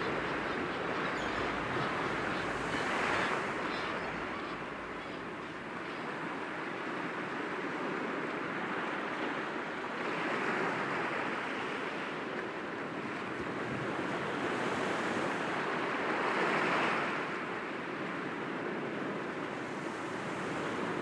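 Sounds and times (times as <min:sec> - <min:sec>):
sea waves washing against rocks: 0:00.0 - 0:05.8.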